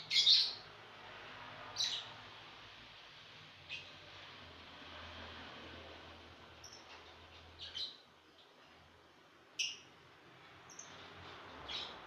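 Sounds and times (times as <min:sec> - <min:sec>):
lovebirds chirping: 0:00.0 - 0:00.6.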